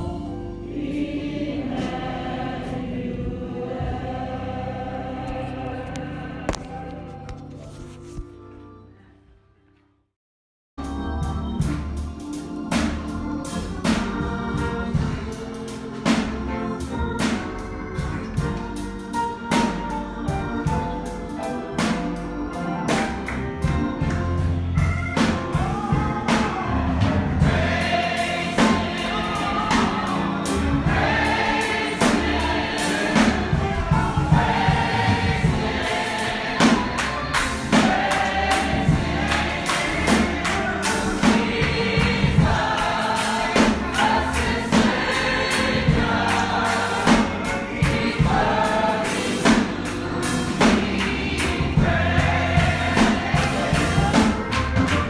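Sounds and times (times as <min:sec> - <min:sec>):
congregation singing gospel song: 0:00.0 - 0:08.2, 0:10.8 - 0:55.0
steady drum beat: 0:11.2 - 0:55.0.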